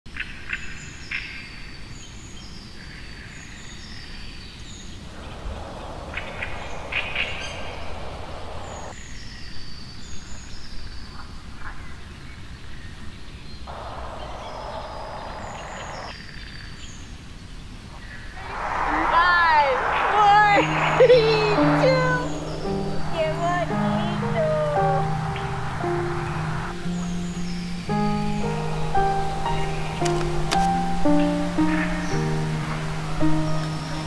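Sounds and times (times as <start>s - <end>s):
rushing hiss: 5.0s - 8.9s, 18.0s - 34.0s
bird repeating falling call: 13.7s - 16.1s.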